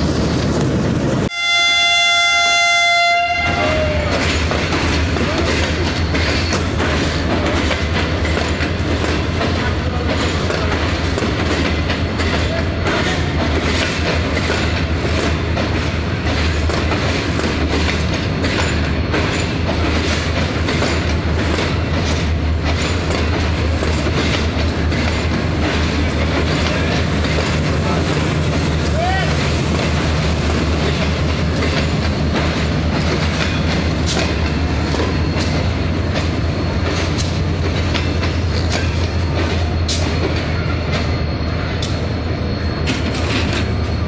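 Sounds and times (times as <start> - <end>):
train rolling past: 0.0 - 44.0
wheels clicking over rail joints: 3.6 - 42.1.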